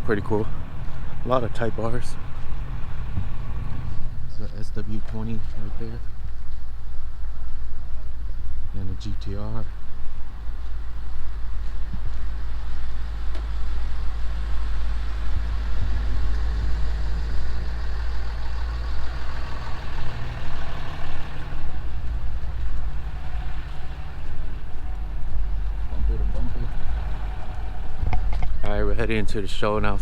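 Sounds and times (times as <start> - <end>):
road noise: 0.0 - 30.0
vehicle engine rumbling: 0.0 - 30.0.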